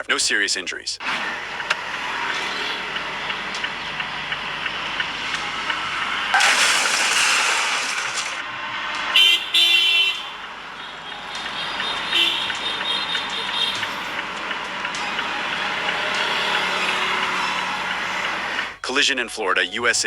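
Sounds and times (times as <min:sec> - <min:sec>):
car horn honking: 0:01.0 - 0:06.9, 0:09.0 - 0:18.8
loud noisy surge: 0:01.0 - 0:18.8
road traffic noise: 0:01.0 - 0:18.9.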